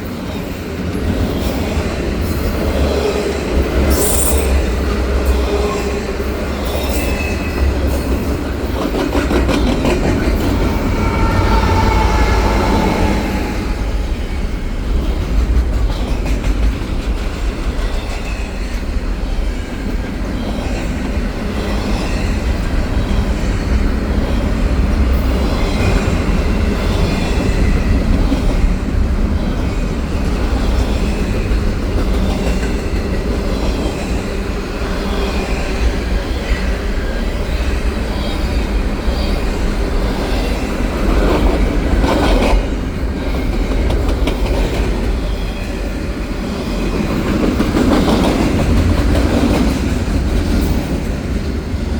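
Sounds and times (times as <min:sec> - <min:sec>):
train wheels rumbling on rails: 0:00.0 - 0:51.9
high wheel squeal: 0:10.4 - 0:14.6.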